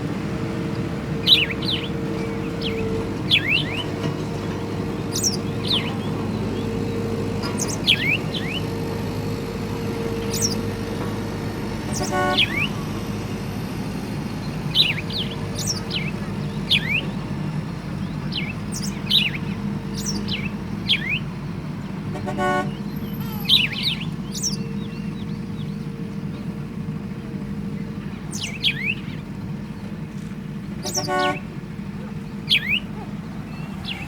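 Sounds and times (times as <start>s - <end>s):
birds chirping: 0.0s - 34.0s
heavy machinery rumbling: 0.0s - 34.0s
horn toot: 11.8s - 12.8s, 22.1s - 22.8s, 30.8s - 31.5s.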